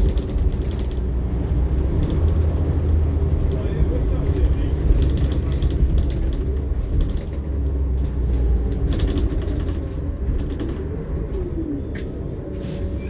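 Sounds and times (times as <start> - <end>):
bus engine rumble: 0.0 - 13.0
rattles: 8.7 - 10.9.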